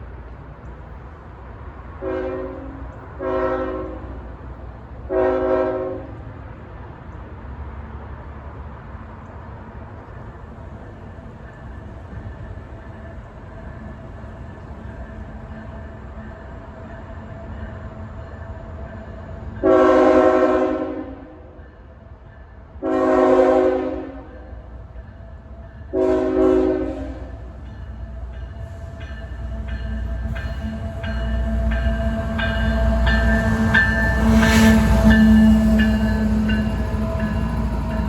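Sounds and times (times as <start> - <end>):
locomotive horn blasts: 2.0 - 4.2, 5.1 - 6.2, 19.6 - 21.4, 22.8 - 24.5, 25.9 - 27.4, 30.2 - 36.6
train wheels clicking on rail joints: 6.1 - 19.6, 27.2 - 38.0
locomotive engines: 26.9 - 38.0.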